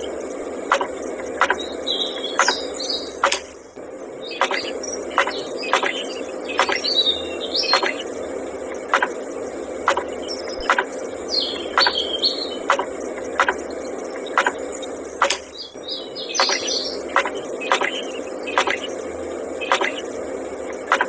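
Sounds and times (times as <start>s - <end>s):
birds chirping: 0.0s - 21.0s
steady hum: 0.0s - 21.0s
sharp repeating click: 0.7s - 3.7s, 4.4s - 7.0s, 7.6s - 8.1s, 8.8s - 11.1s, 11.7s - 15.6s, 16.4s - 19.0s, 19.6s - 20.1s, 20.7s - 21.0s.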